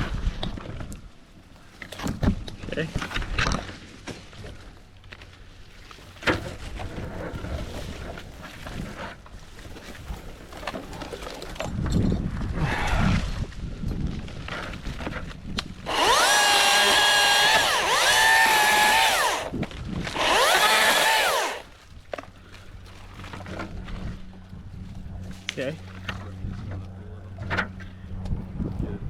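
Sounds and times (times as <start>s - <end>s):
electric chainsaw whining: 15.8s - 21.7s.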